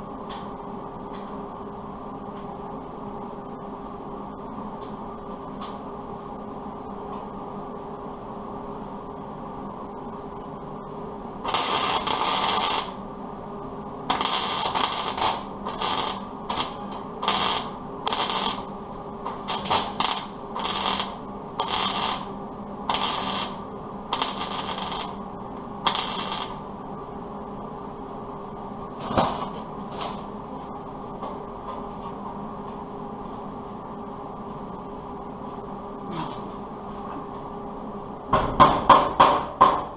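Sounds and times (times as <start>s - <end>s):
steady low hum: 0.0s - 39.9s
welder crackling bursts: 11.4s - 13.0s, 14.1s - 26.6s.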